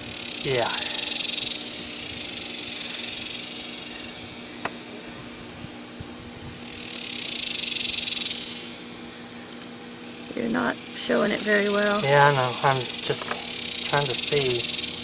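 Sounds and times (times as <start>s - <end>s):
aerosol spray hissing: 0.6s - 5.6s, 10.9s - 15.0s.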